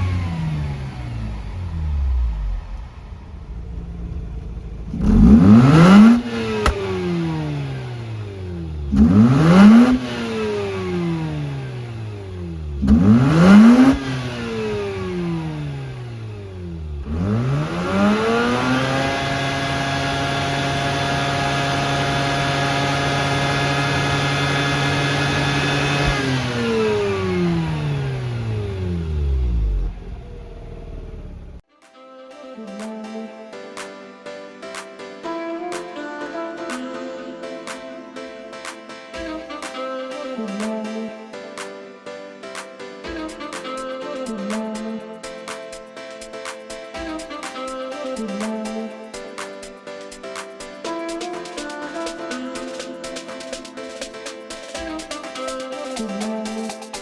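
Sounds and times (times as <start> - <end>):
rotary engine revving: 0.0 - 31.6.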